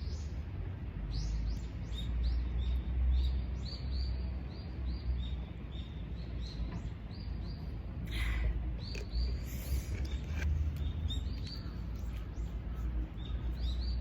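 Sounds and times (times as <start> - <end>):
small bird chirping: 8.8 - 14.0.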